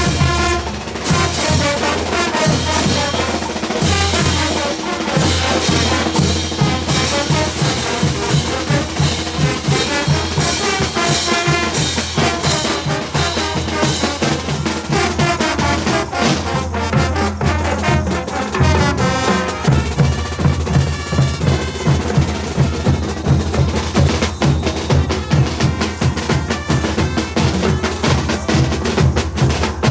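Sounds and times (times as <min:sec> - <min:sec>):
brass band playing: 0:00.0 - 0:29.9
steady drum beat: 0:00.0 - 0:29.9.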